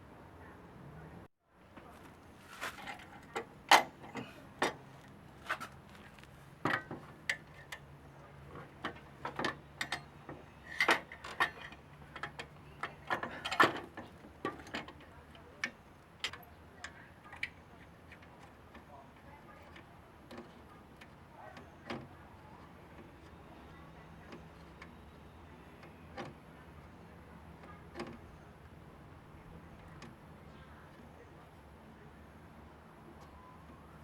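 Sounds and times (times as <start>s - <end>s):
hand tools clinking on metal: 8.8s - 16.5s.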